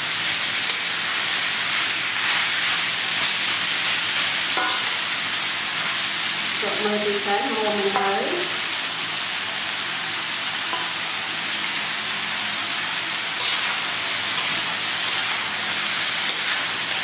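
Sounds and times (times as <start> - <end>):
meat sizzling in a wok: 0.0 - 17.0
metal spatula stirring: 4.6 - 4.9, 13.4 - 17.0.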